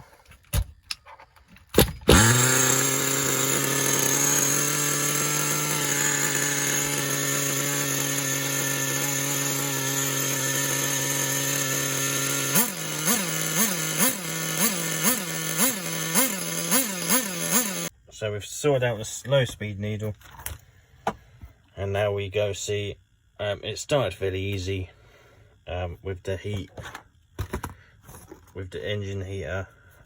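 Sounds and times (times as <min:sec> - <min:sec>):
nitro engine idling: 0:02.1 - 0:17.9.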